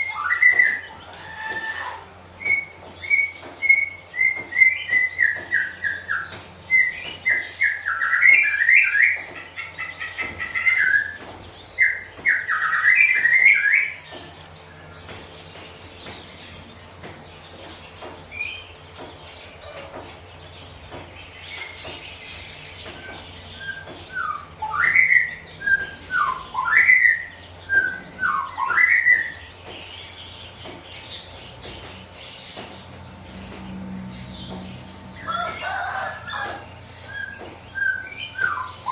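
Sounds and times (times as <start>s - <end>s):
bird singing whistled phrases: 0.0s - 9.3s, 11.8s - 14.1s, 23.5s - 29.5s, 37.1s - 38.9s.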